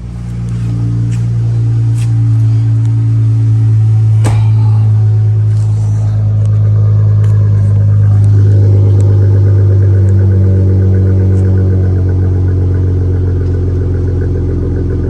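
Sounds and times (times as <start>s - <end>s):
car engine idling: 0.0s - 15.0s
sharp knock: 4.2s - 4.8s.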